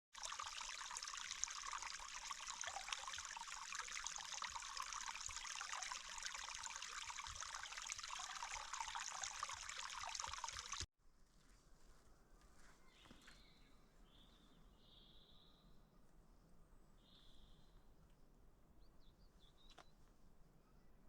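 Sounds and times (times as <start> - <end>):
water trickling: 0.1 - 10.9.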